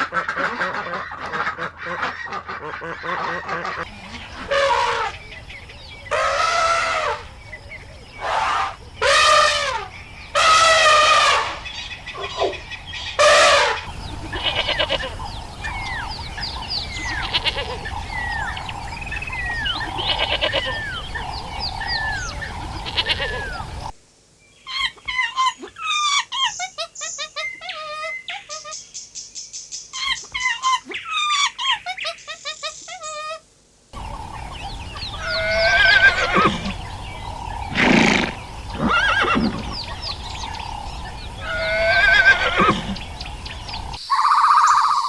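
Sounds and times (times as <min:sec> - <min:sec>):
low steady hum: 0:00.1 - 0:24.0, 0:33.9 - 0:44.0
flock of small birds chirping: 0:02.1 - 0:23.9, 0:34.0 - 0:45.0
farm animals bleating: 0:02.8 - 0:05.2, 0:10.4 - 0:11.6, 0:13.2 - 0:15.2, 0:16.9 - 0:18.1, 0:19.7 - 0:21.0, 0:22.7 - 0:23.6, 0:34.8 - 0:43.9.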